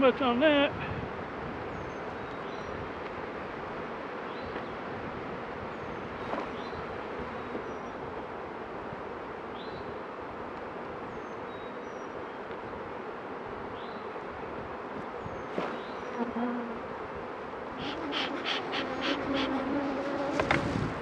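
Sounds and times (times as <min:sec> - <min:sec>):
bees buzzing: 0:15.8 - 0:21.0.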